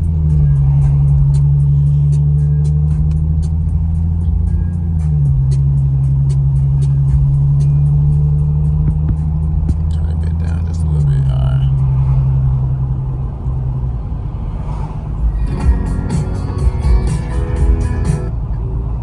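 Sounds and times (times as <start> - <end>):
car engine and exhaust droning: 0.0 - 19.0.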